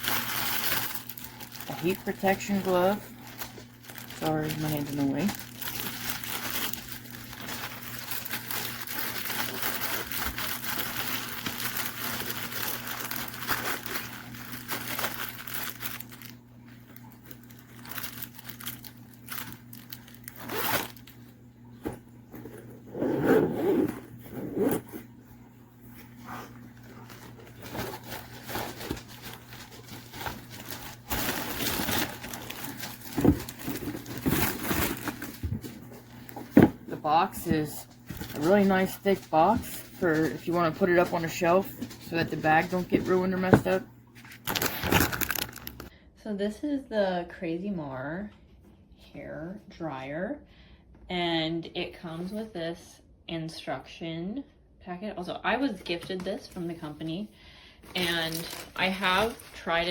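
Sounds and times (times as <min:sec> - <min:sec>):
packaging rustling and scraping: 0:00.0 - 0:21.1, 0:21.8 - 0:25.2, 0:25.9 - 0:45.9, 0:57.9 - 0:59.9
faint steady hum: 0:00.0 - 0:59.9.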